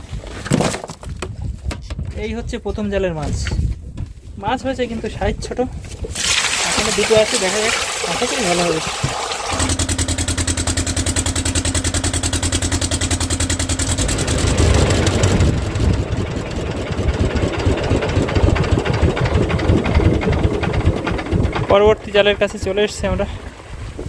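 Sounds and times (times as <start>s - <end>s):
boat engine chugging: 6.1s - 24.0s.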